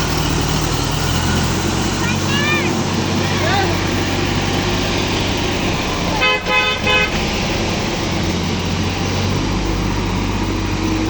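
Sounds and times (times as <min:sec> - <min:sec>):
tractor engine running: 0:00.0 - 0:11.0
horn tooting: 0:05.7 - 0:08.1.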